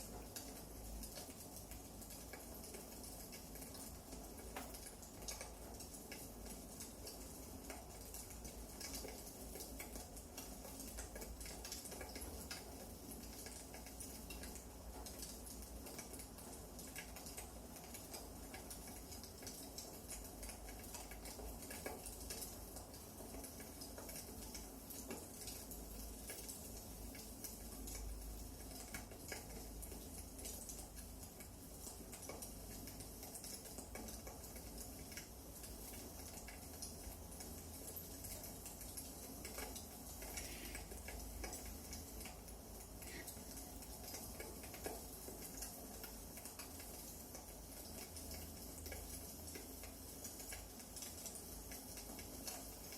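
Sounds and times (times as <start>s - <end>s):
low fire hiss: 0.0s - 52.9s.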